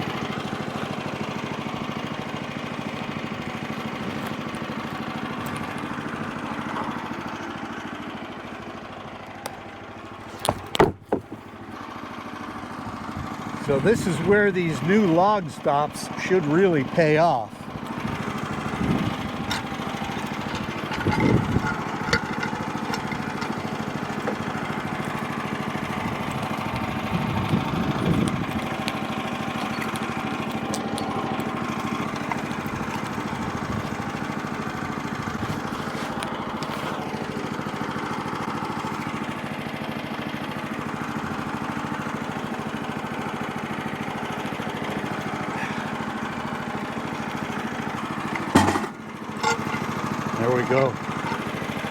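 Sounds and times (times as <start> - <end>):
small gasoline engine running: 0.0 - 51.9.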